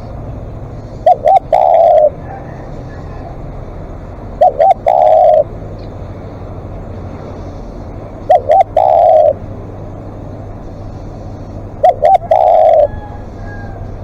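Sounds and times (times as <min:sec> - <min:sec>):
dove cooing: 0:00.7 - 0:05.6, 0:07.4 - 0:09.6, 0:10.3 - 0:14.0.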